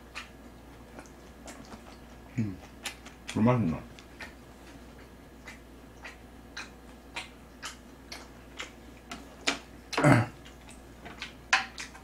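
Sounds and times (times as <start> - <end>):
wet smacking chewing: 0.0 - 12.0.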